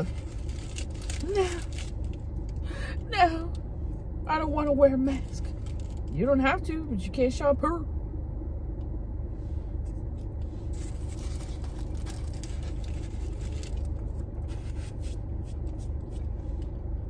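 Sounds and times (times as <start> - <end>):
paper wrapper crinkling: 0.0 - 2.2, 10.7 - 15.2
car engine idling: 0.0 - 17.0.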